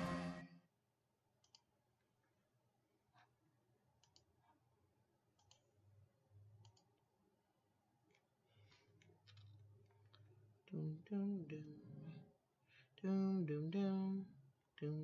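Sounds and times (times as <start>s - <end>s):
computer mouse clicks: 1.4s - 1.7s, 4.0s - 4.6s, 5.4s - 5.7s, 6.6s - 7.0s.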